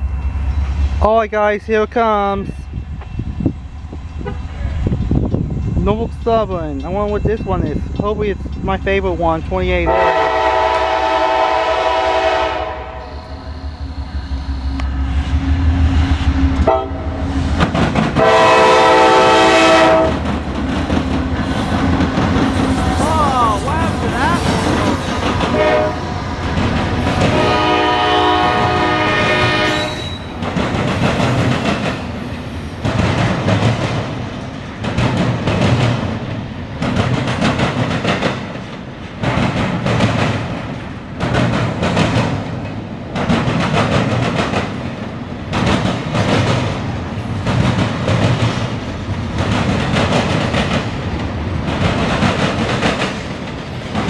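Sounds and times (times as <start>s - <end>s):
train wheels clattering on rails: 2.1s - 12.2s, 15.2s - 54.0s
locomotive horn blasts: 4.2s - 4.6s, 9.8s - 14.8s, 16.6s - 17.2s, 18.2s - 20.2s, 25.5s - 26.1s, 27.2s - 30.2s.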